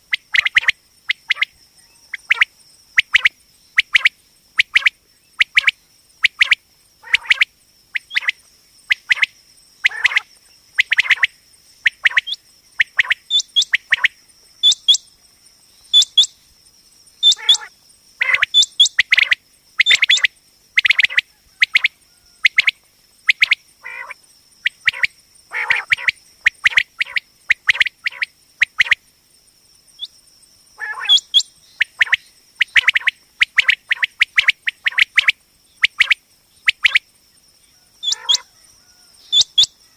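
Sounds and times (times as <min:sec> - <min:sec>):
quail calling: 0:06.3 - 0:07.4, 0:08.0 - 0:11.3, 0:11.9 - 0:15.0, 0:15.9 - 0:16.3, 0:17.2 - 0:22.7, 0:23.3 - 0:29.0, 0:30.8 - 0:35.3, 0:37.8 - 0:39.9.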